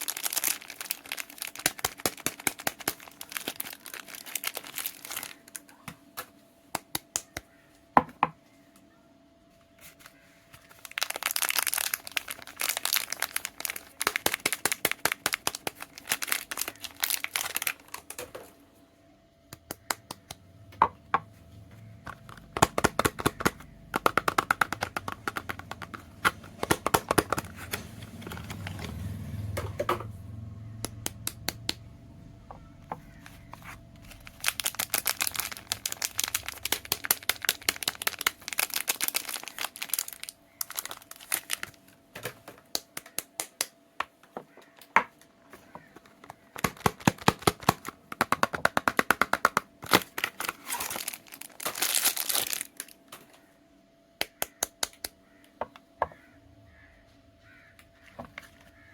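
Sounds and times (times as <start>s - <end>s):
wrapper crinkling and tearing: 0.0s - 5.8s, 9.9s - 18.4s, 22.2s - 29.0s, 33.2s - 42.0s, 46.0s - 53.2s.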